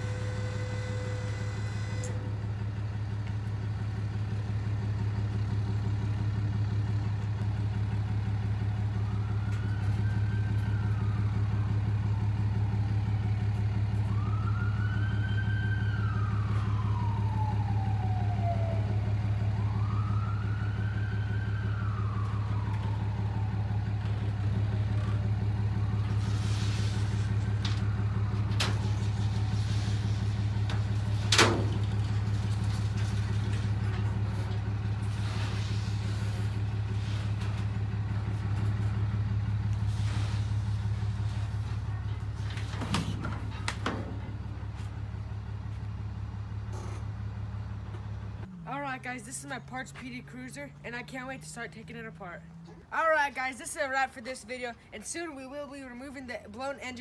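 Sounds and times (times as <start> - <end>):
distant siren wailing: 0.0 - 2.8, 8.0 - 46.6
vehicle engine idling: 0.0 - 54.9.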